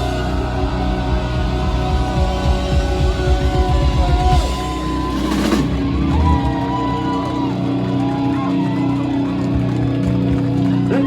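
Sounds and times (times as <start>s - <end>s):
crowd cheering and whooping: 0.0s - 11.0s
rock band playing: 0.0s - 11.0s.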